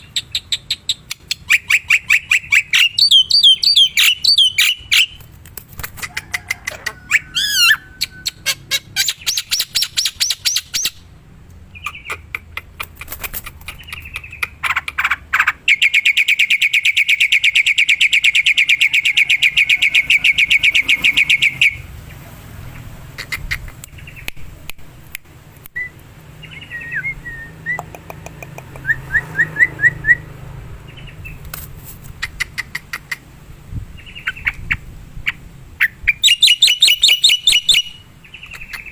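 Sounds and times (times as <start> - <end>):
bird harsh chattering: 0.0 - 5.2, 11.7 - 21.8, 32.2 - 33.3, 34.1 - 38.9.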